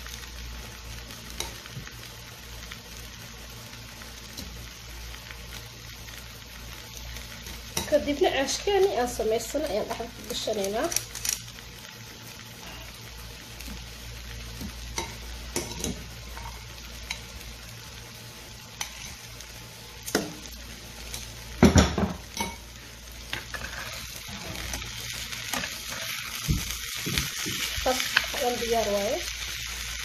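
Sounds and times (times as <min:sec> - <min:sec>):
food sizzling in a pan: 0:00.0 - 0:30.0
metal tongs scraping a pan: 0:15.0 - 0:17.3, 0:18.8 - 0:19.2, 0:23.3 - 0:26.3.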